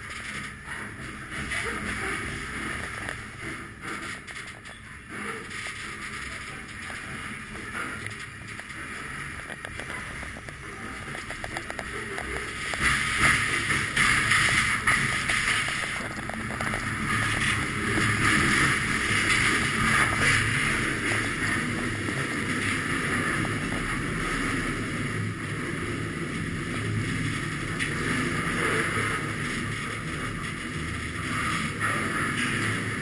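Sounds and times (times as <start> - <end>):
train rumble and rattle: 0.0 - 33.0.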